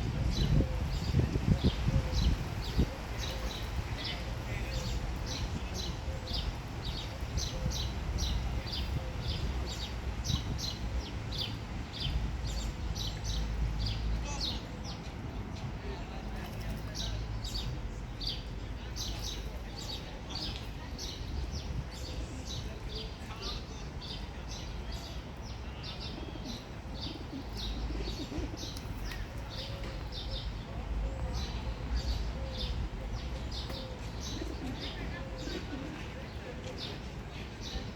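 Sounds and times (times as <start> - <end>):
pigeons cooing: 26.0 - 36.6.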